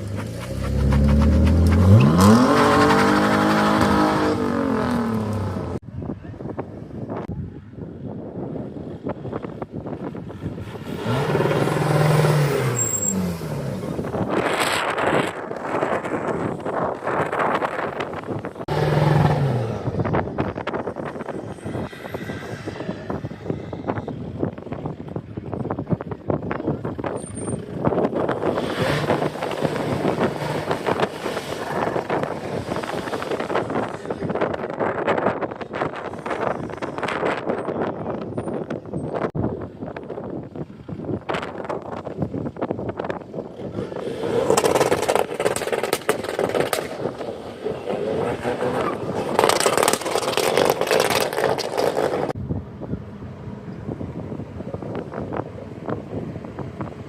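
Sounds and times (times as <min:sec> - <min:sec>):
car engine revving: 0:00.0 - 0:05.8, 0:10.7 - 0:15.4, 0:16.0 - 0:23.3, 0:27.8 - 0:34.4
car engines running: 0:00.0 - 0:05.8, 0:08.8 - 0:57.0
wind buffeting microphone: 0:00.0 - 0:57.0.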